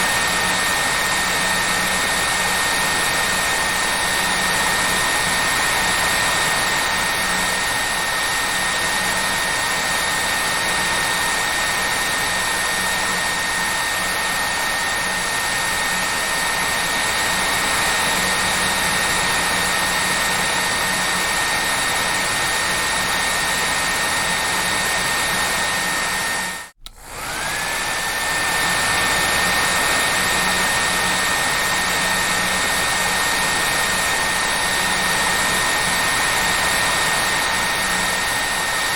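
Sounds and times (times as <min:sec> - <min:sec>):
hair dryer blowing with motor whine: 0:00.0 - 0:38.9.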